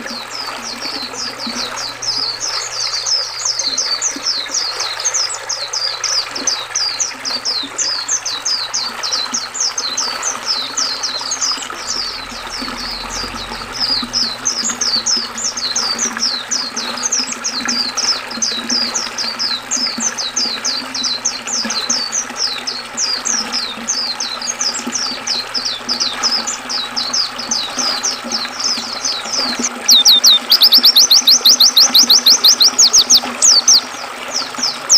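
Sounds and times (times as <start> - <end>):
small birds chirping: 0.0 - 34.9
bird trill: 6.8 - 33.9
river water rushing: 23.0 - 34.9.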